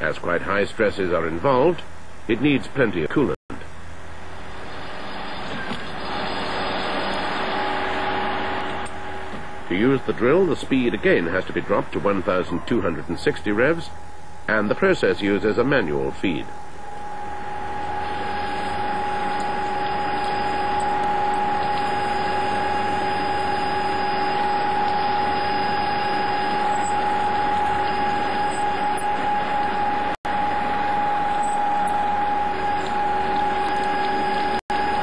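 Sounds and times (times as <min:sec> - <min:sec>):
lathe drilling with mechanical whine: 0:04.4 - 0:12.4, 0:14.4 - 0:35.0.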